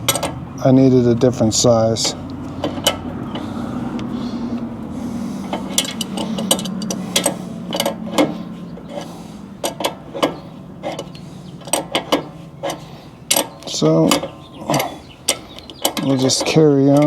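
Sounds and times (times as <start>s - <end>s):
metal hand tools clinking: 0.0s - 0.4s, 5.4s - 17.0s
low hum: 0.0s - 16.4s.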